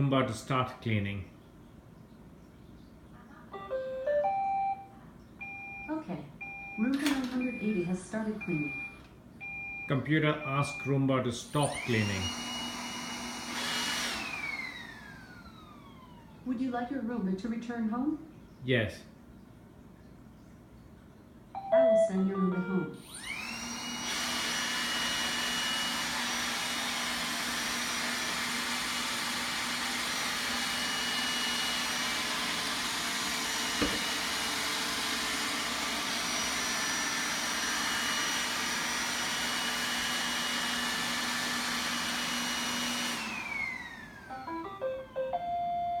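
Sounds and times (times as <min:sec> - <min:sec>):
robot vacuum whirring: 0:11.6 - 0:16.2, 0:23.1 - 0:44.6
knock: 0:33.8 - 0:34.1.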